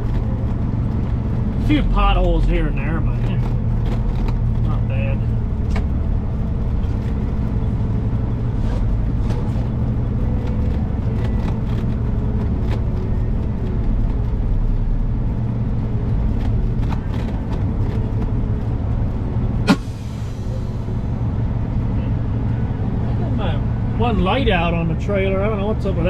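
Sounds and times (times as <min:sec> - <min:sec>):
diesel truck engine running: 0:00.0 - 0:26.0
sharp snap: 0:19.6 - 0:20.0.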